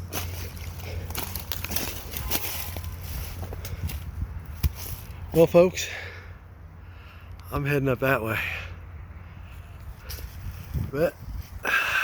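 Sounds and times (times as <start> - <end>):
footsteps through dry leaves: 0.0 - 5.2
twigs crackling: 0.0 - 5.4.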